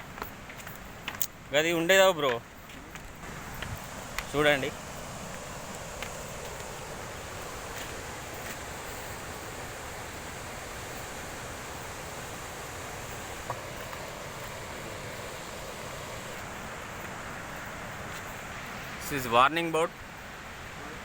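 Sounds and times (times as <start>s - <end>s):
waterfall roaring: 3.2s - 19.7s.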